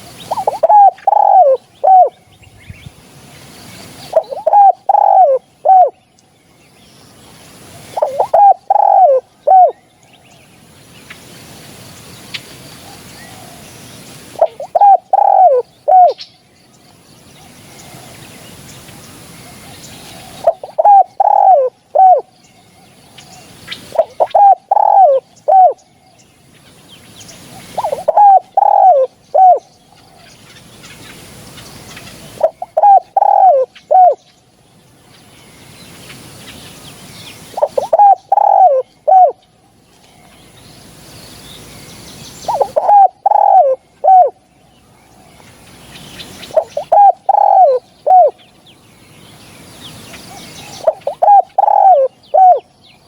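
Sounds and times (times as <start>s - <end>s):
dove cooing: 0.0s - 2.2s, 4.1s - 6.0s, 7.9s - 9.8s, 14.4s - 16.2s, 19.6s - 22.3s, 23.3s - 25.8s, 27.5s - 30.3s, 32.1s - 34.2s, 37.5s - 39.4s, 42.5s - 44.4s, 46.5s - 48.4s, 50.3s - 52.6s.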